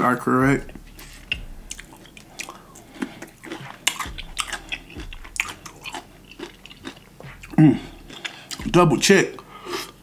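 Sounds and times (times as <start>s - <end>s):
crunchy chewing of pickle: 1.2s - 8.7s.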